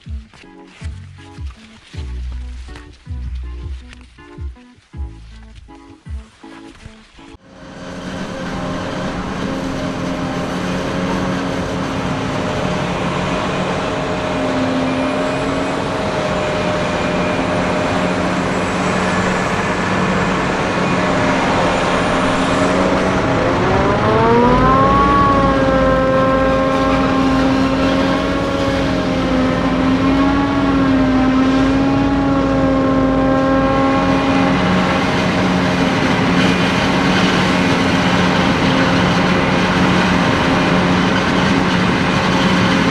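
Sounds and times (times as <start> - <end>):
engine running: 0.0 - 42.9.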